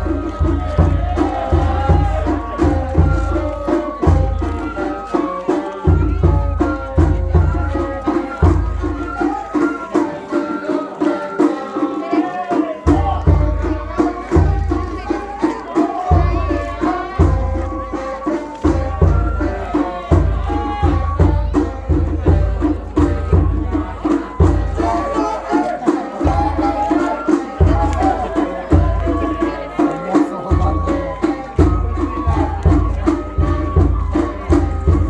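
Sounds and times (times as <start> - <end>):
drums quick steady beat: 0.0 - 35.0.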